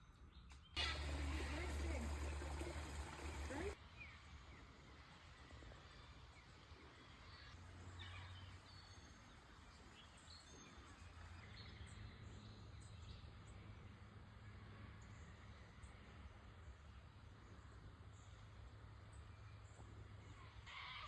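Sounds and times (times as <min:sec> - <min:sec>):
faint high bird chirps: 0:00.6 - 0:04.2
low steady rumble: 0:00.8 - 0:03.8.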